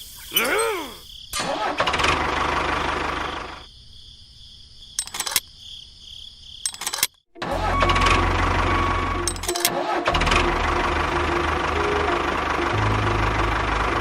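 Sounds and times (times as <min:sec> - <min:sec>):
engine low rumble: 0:01.6 - 0:03.7, 0:07.4 - 0:14.0
sharp clicks: 0:05.0 - 0:05.5, 0:06.6 - 0:07.2.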